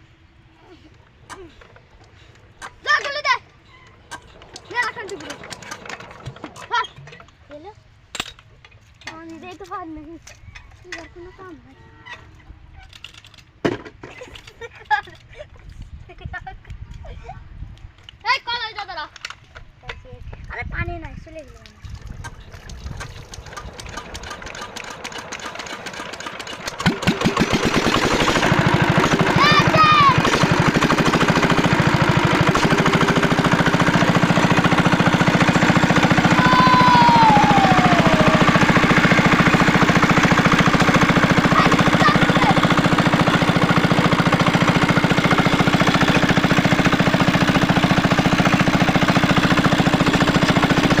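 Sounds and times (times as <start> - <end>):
diesel engine chuffing and running: 4.0 - 7.7, 22.4 - 51.0.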